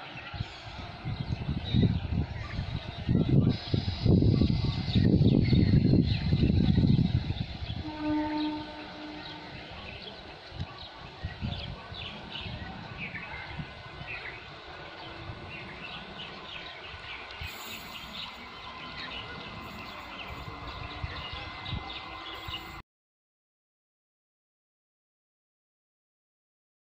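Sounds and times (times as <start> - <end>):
steady low rumble: 8.9 - 22.8.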